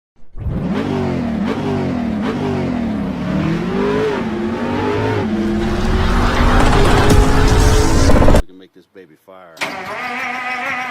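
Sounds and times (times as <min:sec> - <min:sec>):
large engine revving: 0:00.4 - 0:08.4.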